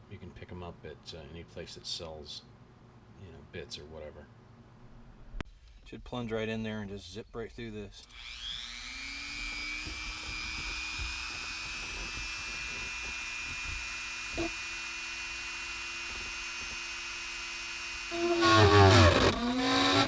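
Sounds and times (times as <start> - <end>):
rotary tool whining: 8.0 - 20.0.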